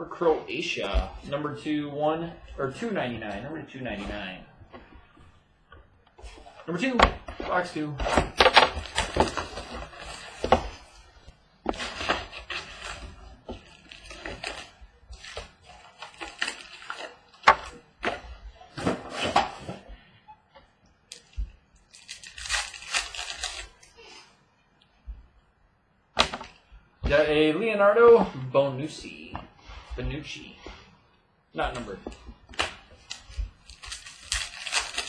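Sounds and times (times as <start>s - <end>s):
card pack wrapper tearing: 13.7s - 17.8s, 21.1s - 23.9s, 32.6s - 35.0s.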